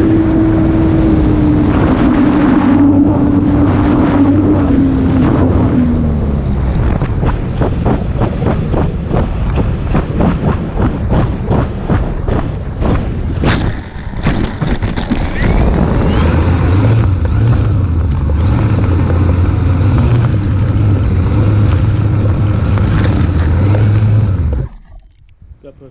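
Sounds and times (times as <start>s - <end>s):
wind rumble on microphone: 0.0s - 25.9s
electric motor and propeller winding down: 13.4s - 25.2s.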